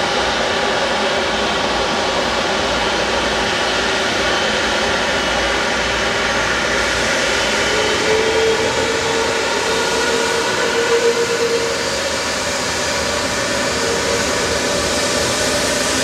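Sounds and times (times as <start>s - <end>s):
jet engines roaring: 0.0s - 16.0s
rising engine whine: 5.2s - 16.0s.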